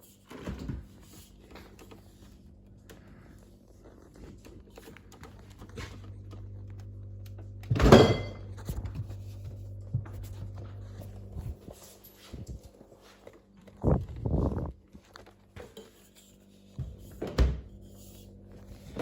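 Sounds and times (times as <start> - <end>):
fridge freezer humming: 0.0 - 19.0
fridge door thunk: 7.7 - 8.4.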